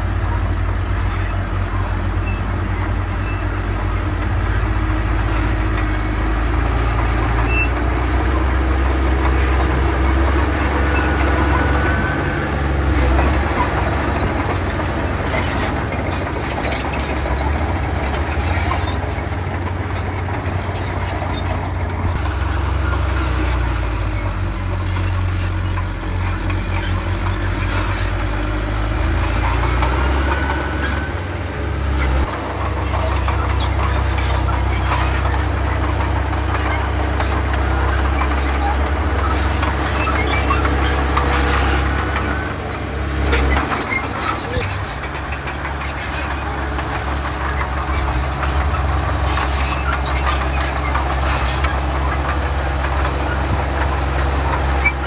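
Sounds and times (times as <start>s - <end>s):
heavy machinery diesel engine running: 0.0s - 55.0s.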